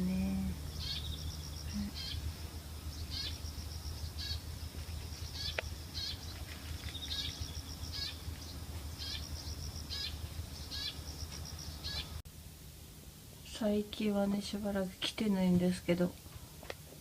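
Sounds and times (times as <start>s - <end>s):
small bird singing: 0.0s - 12.2s.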